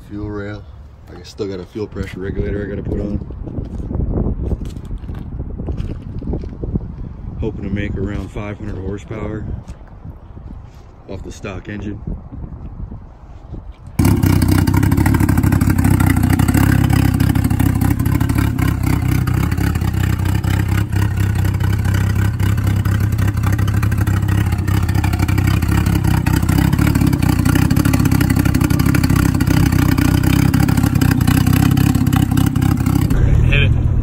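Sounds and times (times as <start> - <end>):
car engine idling: 14.0 - 34.0.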